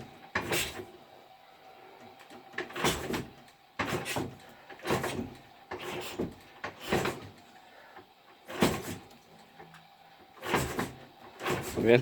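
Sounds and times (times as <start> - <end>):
motorcycle being kick-started: 2.6 - 7.4.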